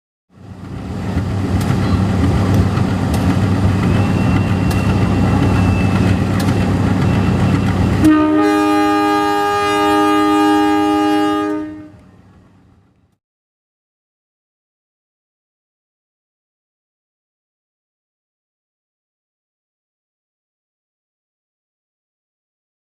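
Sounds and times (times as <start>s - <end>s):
train rumbling over rails: 0.3s - 13.1s
train horn chord: 8.0s - 12.2s.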